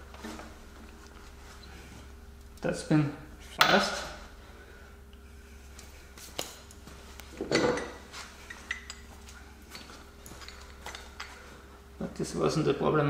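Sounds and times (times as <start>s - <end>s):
metal tools clinking: 7.4s - 11.5s.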